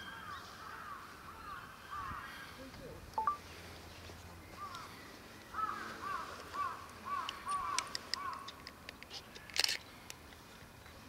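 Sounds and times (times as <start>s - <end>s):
bird calling: 4.4s - 8.6s.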